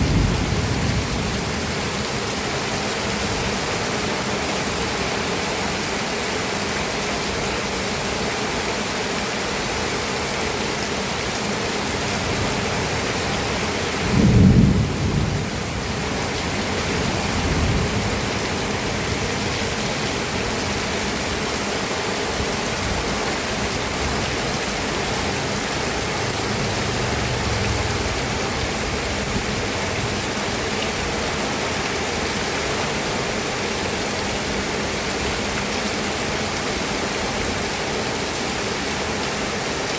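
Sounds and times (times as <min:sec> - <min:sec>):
thunder rumbling: 0:00.0 - 0:02.1, 0:12.8 - 0:19.8, 0:24.0 - 0:30.4
steady rain: 0:00.0 - 0:39.9.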